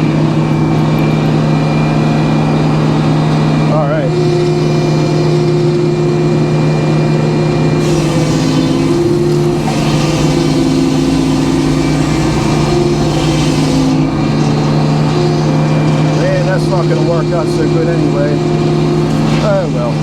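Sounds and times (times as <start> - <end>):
sawmill engine running: 0.0 - 20.0
saw hissing through log: 7.8 - 15.6.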